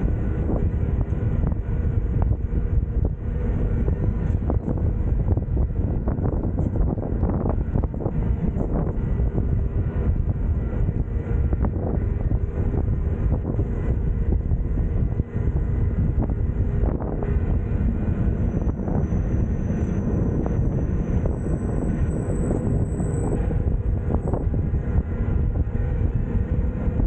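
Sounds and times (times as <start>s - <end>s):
faint high whine: 0.0s - 27.0s
train wheels rumbling on track: 0.0s - 27.0s.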